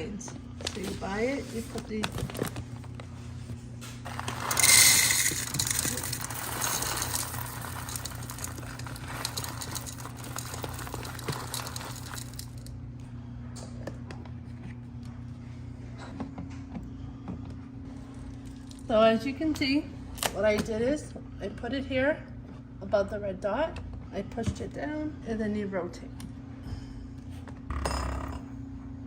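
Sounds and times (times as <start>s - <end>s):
steady low hum: 0.0s - 29.0s
espresso machine parts rattling: 4.1s - 12.7s.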